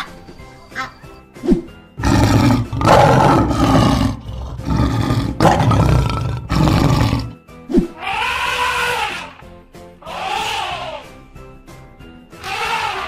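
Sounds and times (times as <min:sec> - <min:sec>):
background music: 0:00.0 - 0:13.0
lion roaring: 0:02.0 - 0:07.4.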